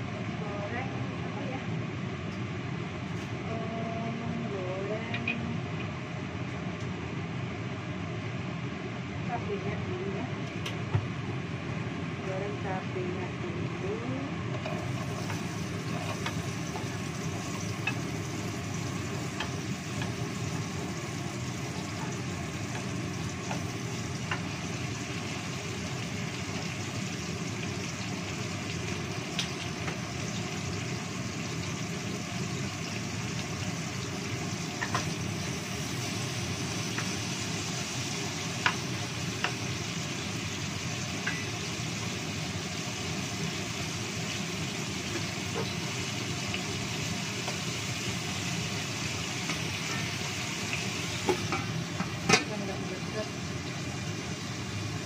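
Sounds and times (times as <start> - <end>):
chillies sizzling in hot oil: 11.2 - 55.0.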